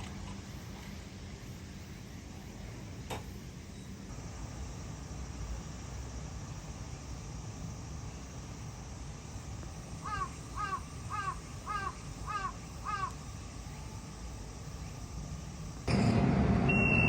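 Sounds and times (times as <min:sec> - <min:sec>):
crow cawing: 0:10.0 - 0:13.2.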